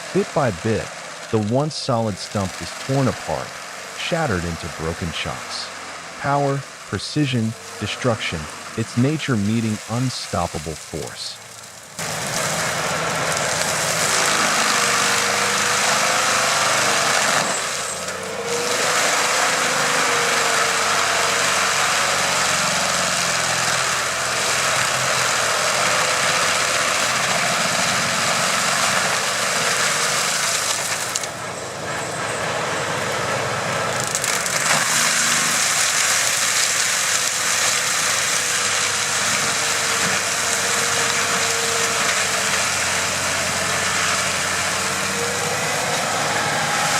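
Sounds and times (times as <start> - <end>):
stump grinder engine under load: 0.0 - 46.9.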